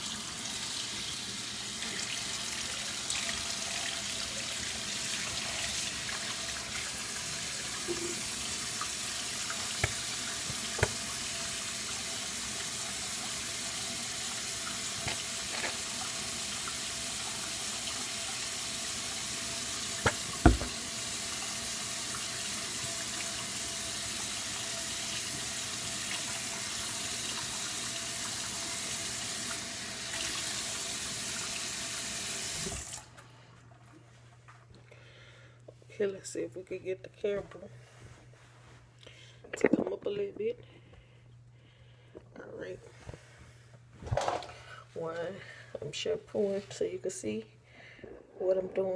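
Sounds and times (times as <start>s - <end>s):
tap water running: 0.0s - 33.2s
sharp knocks: 20.1s - 20.8s.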